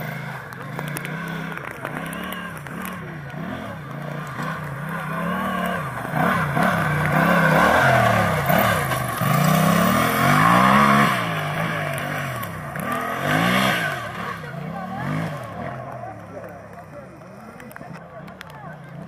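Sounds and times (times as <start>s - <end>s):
tractor engine revving: 0.0s - 19.0s.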